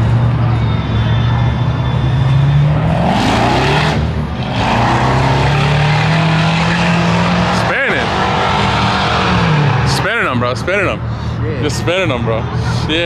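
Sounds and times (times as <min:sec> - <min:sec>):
tires spinning: 0:01.5 - 0:10.0
car engine revving high: 0:02.2 - 0:09.9.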